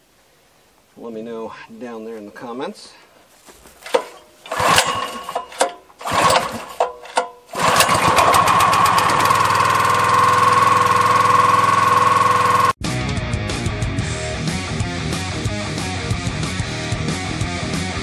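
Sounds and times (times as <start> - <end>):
small gasoline engine starting: 3.8 - 12.8.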